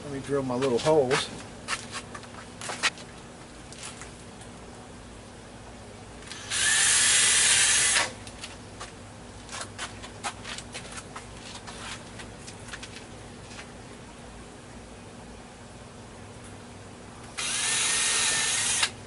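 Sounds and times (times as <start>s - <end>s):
power drill drilling: 6.3s - 8.1s, 17.4s - 19.0s.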